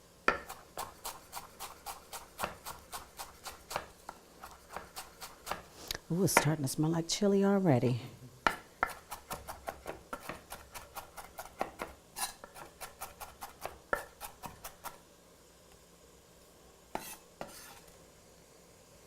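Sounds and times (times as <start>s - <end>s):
knife chopping on cutting board: 0.3s - 5.7s, 8.4s - 15.0s, 16.9s - 17.8s
knife scrape: 0.4s - 5.9s, 8.8s - 15.0s, 16.9s - 18.0s.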